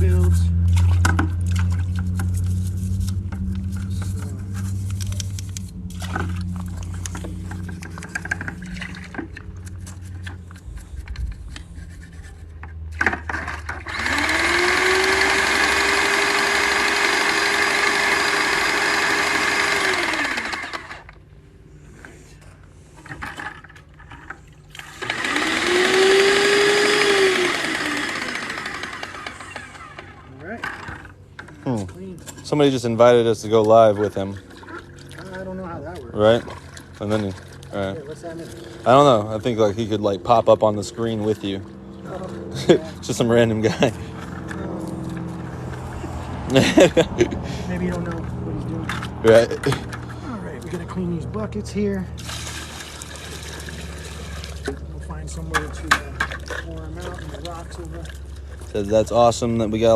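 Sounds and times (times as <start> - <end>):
low steady hum: 0.0 - 16.1
pump motor whining: 0.0 - 59.9.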